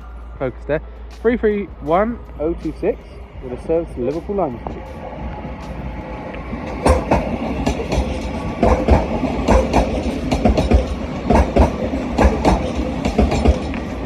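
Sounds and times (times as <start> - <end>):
train rumble: 0.0 - 14.0
train wheels knocking over rail joints: 5.6 - 14.0.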